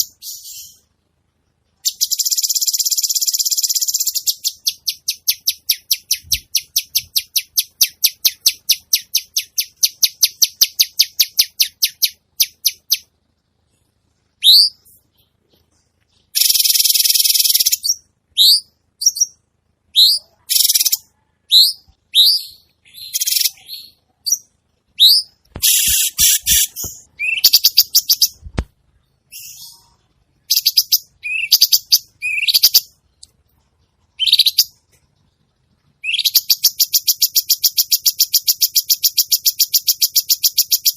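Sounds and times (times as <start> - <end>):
bird upward-sweeping whistles: 14.4 - 14.9, 25.0 - 28.3
bird high chips: 25.1 - 28.3.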